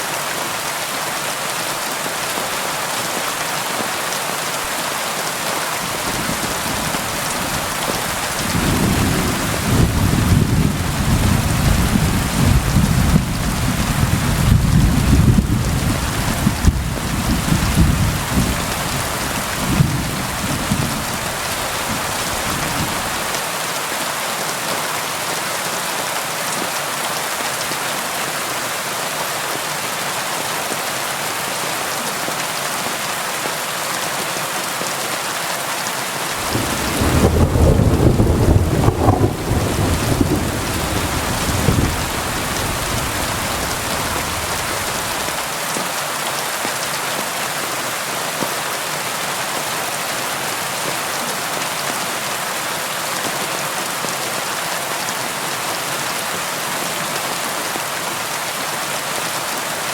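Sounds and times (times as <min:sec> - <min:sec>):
rain falling: 0:00.0 - 0:59.9
rolling thunder: 0:06.0 - 0:23.3, 0:36.4 - 0:45.3.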